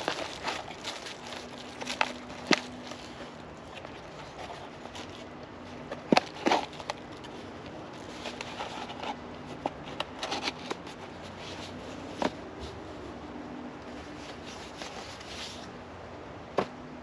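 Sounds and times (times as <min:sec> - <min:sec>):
packaging crinkling: 0:00.0 - 0:09.2
clicks and knocks of handled parts: 0:00.0 - 0:12.4
faint steady hum: 0:00.0 - 0:17.0.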